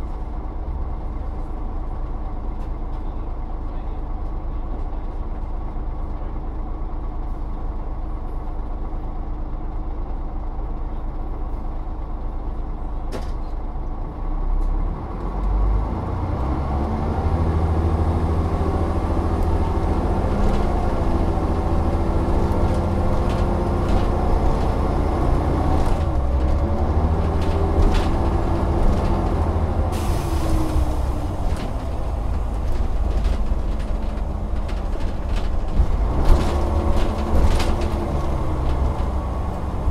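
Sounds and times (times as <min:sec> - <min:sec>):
bus diesel engine: 0:00.0 - 0:39.9
air brake hiss: 0:29.9 - 0:30.8.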